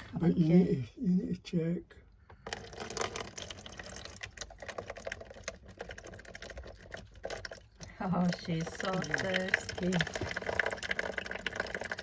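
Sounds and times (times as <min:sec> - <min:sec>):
cat lapping water: 0:02.5 - 0:12.0.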